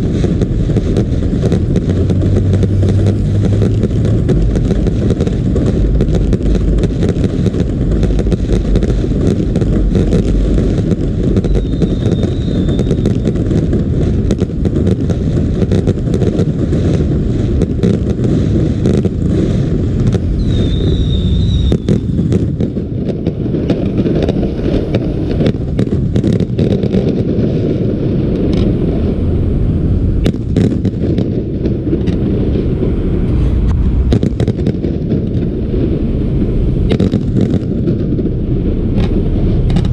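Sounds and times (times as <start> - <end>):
fireworks bursting: 0.0 - 39.9
high whistle: 11.4 - 13.3, 20.3 - 22.0.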